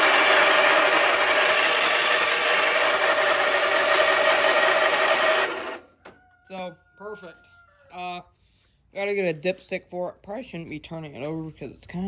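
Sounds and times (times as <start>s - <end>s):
electric starter cranking engine: 0.0s - 5.9s.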